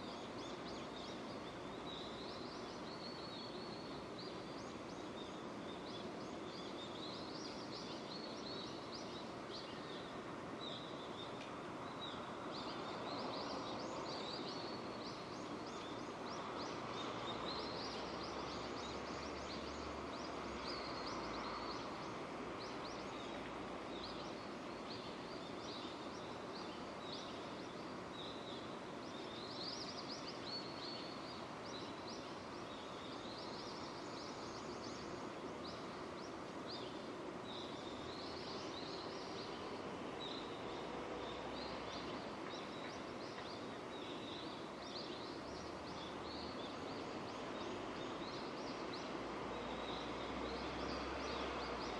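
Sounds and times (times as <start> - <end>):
steady rain falling: 5.7 - 51.9.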